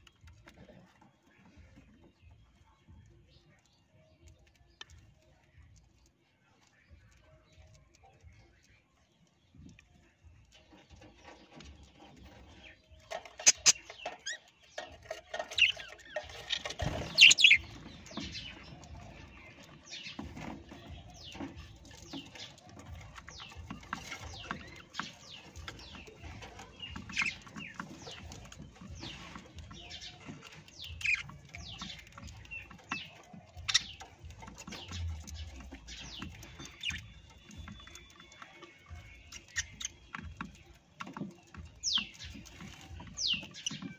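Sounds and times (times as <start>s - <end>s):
clicks and scratching: 3.3s - 43.9s
parrots chirping and squawking: 13.0s - 40.6s.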